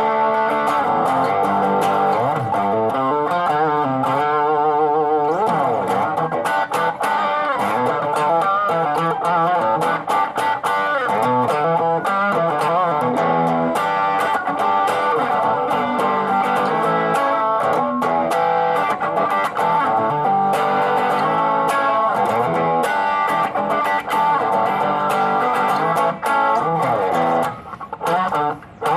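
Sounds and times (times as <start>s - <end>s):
distorted electric guitar: 0.0s - 28.9s.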